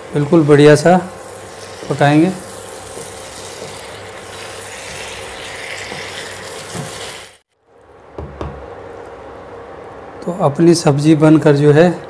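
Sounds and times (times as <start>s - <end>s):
curry sizzling in pan: 0.0s - 7.5s.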